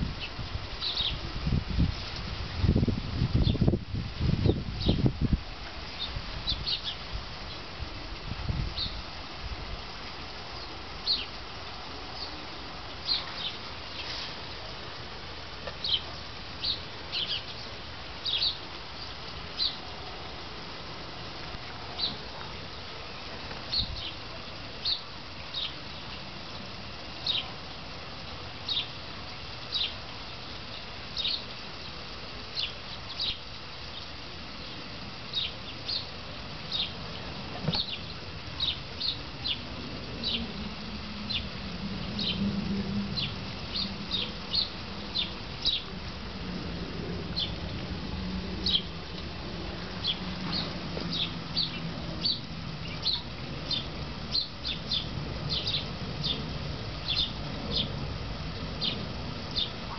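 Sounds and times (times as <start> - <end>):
low steady hum: 0.0 - 59.9
small bird chirping: 0.2 - 1.2, 15.8 - 17.6, 18.2 - 19.8, 30.7 - 31.4, 37.7 - 39.6, 43.2 - 45.9, 50.0 - 56.4, 57.0 - 57.9, 58.8 - 59.9.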